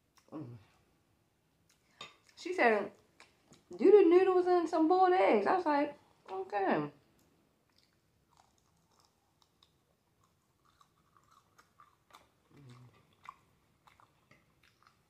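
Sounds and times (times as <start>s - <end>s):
chewing and mouth smacks: 1.6s - 2.4s, 7.2s - 15.0s.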